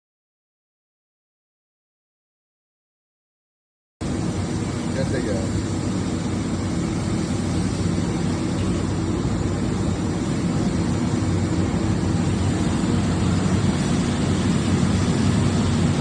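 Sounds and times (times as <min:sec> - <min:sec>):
machine mechanical hum: 0:04.0 - 0:16.0.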